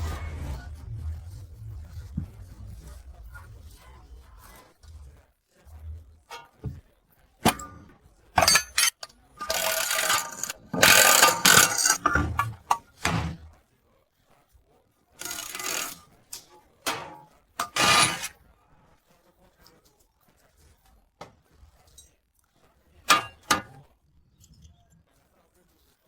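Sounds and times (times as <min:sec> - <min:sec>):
mechanical clicking and knocking: 0:08.4 - 0:13.4, 0:15.2 - 0:16.0
scraping and rattling: 0:08.4 - 0:13.4, 0:15.2 - 0:16.0, 0:16.9 - 0:18.3.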